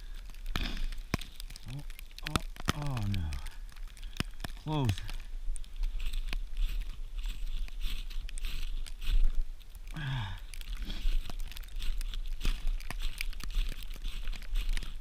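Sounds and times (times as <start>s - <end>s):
tinder crunching and clicks: 0.0s - 15.0s.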